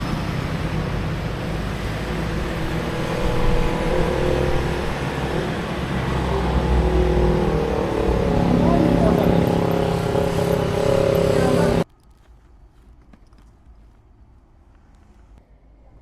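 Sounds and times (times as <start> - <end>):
motorcycle engine running: 0.0 - 11.8
road noise: 0.0 - 16.0
wind: 0.0 - 16.0.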